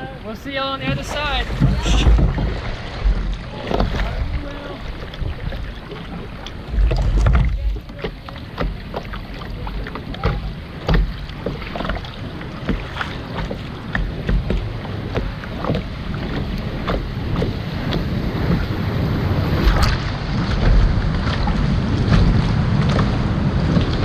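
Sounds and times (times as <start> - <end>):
paddle strokes splashing: 0.0 - 24.0
wind rumble on microphone: 0.0 - 24.0.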